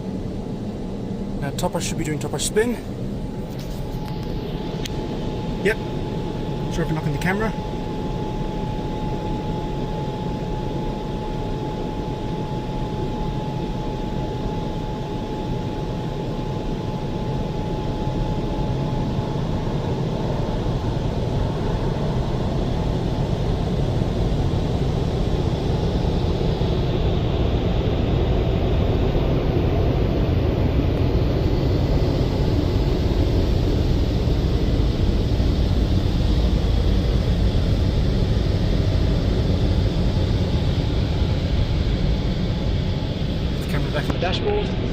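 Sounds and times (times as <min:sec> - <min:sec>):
faint steady whine: 0:00.0 - 0:44.9
car wash dryers blowing air: 0:01.3 - 0:09.6, 0:31.4 - 0:44.9.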